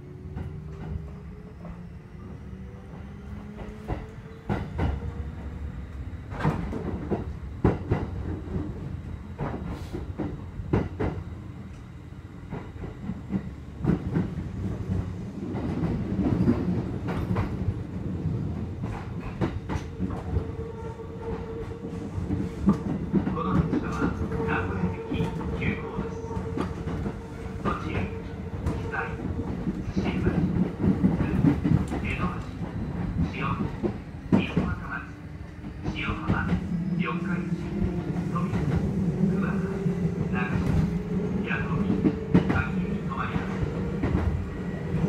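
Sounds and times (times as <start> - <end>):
train rumble from inside: 0.0 - 45.0.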